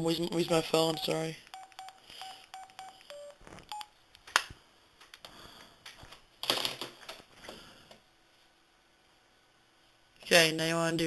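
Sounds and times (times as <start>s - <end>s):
phone keypad beeps: 0.4s - 3.9s.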